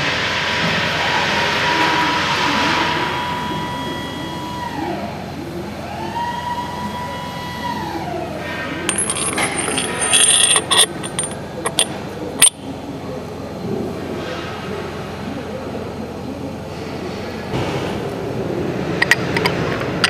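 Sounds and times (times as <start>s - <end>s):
metallic clicks and clinks: 8.9s - 12.6s.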